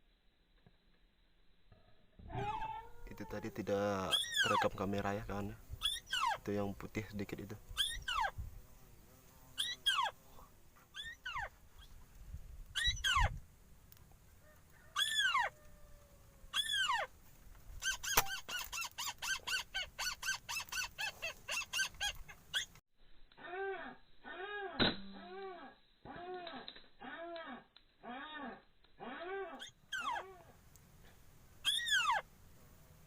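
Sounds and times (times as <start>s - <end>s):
bird calls: 2.4s - 6.6s, 7.7s - 8.4s, 9.6s - 12.0s, 12.8s - 13.4s, 14.9s - 15.6s, 16.5s - 17.1s, 17.8s - 22.8s, 31.6s - 32.2s.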